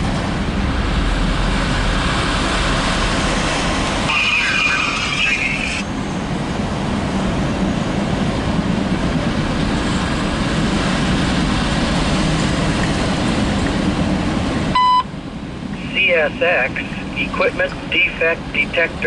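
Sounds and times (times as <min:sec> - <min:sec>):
train wheels on rails: 0:00.0 - 0:14.8
scanner radio beep: 0:14.8 - 0:15.1.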